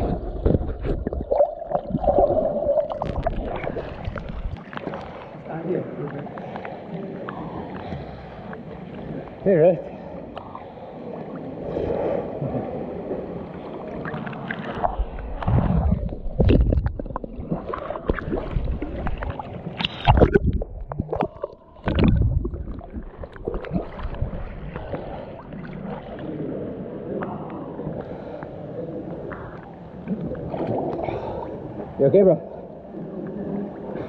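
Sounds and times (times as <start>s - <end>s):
water thumping against microphone: 0.0s - 5.0s, 14.8s - 25.1s
muffled water sloshing and gurgling: 0.0s - 34.0s.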